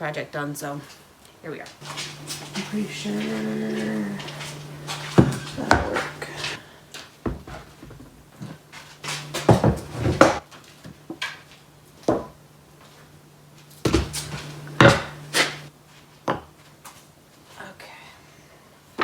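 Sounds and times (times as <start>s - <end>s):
low hum: 1.8s - 6.6s, 9.1s - 10.4s, 14.2s - 15.7s
wooden boards knocking: 9.2s - 10.4s.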